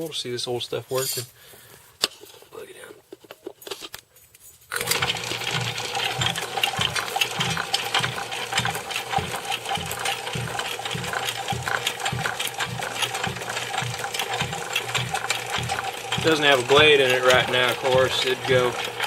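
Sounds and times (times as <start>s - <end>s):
reciprocating saw motor running: 4.8s - 19.0s
rhythmic knocking: 4.8s - 19.0s.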